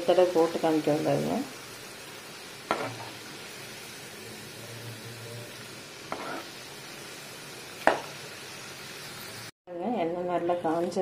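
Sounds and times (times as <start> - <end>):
food deep-frying in oil: 0.0 - 9.5
metal spoon knocking on pan: 2.7 - 3.1, 7.9 - 8.1.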